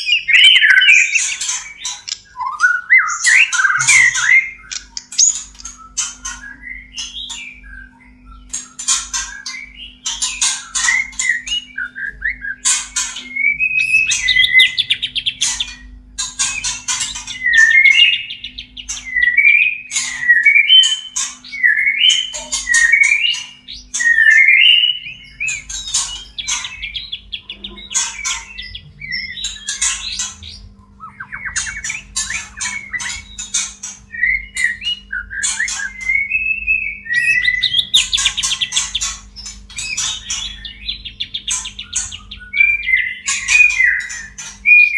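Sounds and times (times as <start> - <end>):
bird scratchy chatter: 0.2 - 2.4, 3.0 - 7.6, 12.6 - 19.2, 19.8 - 36.1, 37.0 - 44.9
bird whistled phrases: 2.3 - 8.0, 34.1 - 38.6, 39.8 - 44.9.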